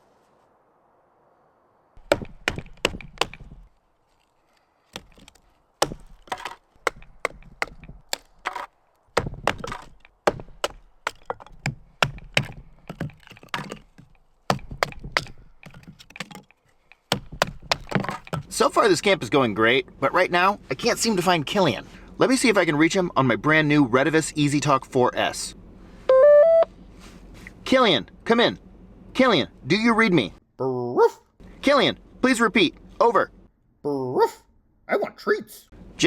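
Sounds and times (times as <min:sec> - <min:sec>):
dry sticks snapping: 0:02.0 - 0:18.6.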